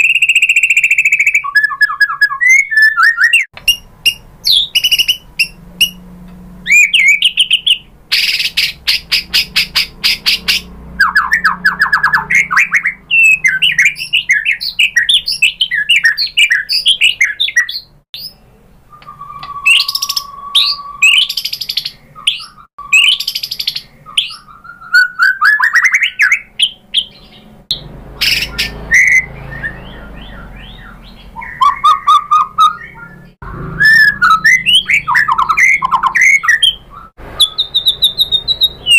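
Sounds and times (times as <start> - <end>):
bird singing varied song: 0.0 - 38.9.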